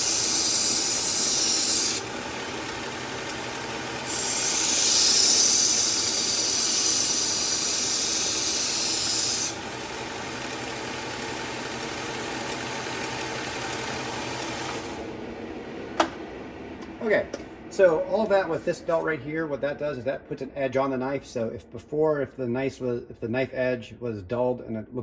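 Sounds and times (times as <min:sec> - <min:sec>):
knife grinding on belt sharpener: 0:00.0 - 0:02.1, 0:04.0 - 0:09.6
belt sharpener running: 0:00.0 - 0:15.1.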